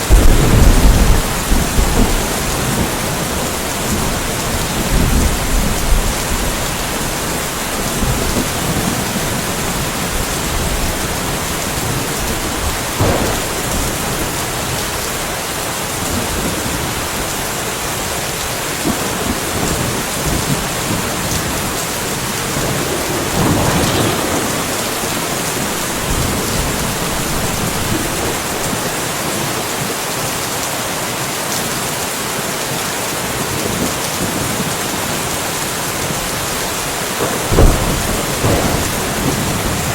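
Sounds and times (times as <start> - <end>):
sharp thunder crack: 0.0 - 6.6, 8.0 - 15.2, 20.3 - 28.9, 37.3 - 39.9
thunder rumbling: 0.0 - 18.2, 18.8 - 29.6, 37.2 - 39.9
steady rainfall: 0.0 - 39.9.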